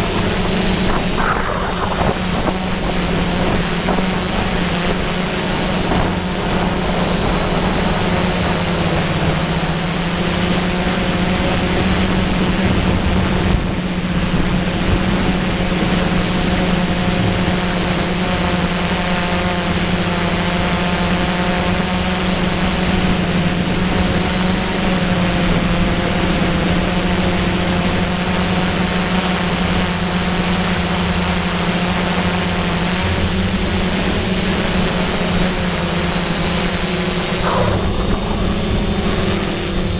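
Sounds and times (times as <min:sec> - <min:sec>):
strong wind rushing: 0:00.0 - 0:08.2, 0:37.0 - 0:39.9
thin high whine: 0:00.0 - 0:20.5, 0:32.6 - 0:39.9
drone motors humming: 0:00.0 - 0:39.9.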